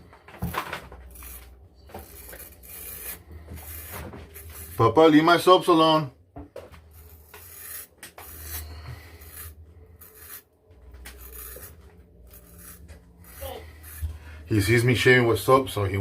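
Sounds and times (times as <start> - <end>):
straight razor scraping stubble: 1.0 - 5.3, 6.9 - 14.8.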